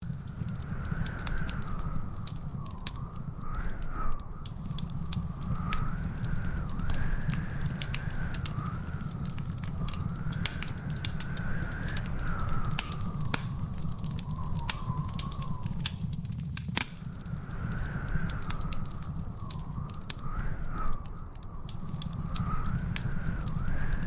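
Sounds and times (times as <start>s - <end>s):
wood fire crackling: 0.0s - 24.0s
thin wavering whistling tone: 1.2s - 16.2s.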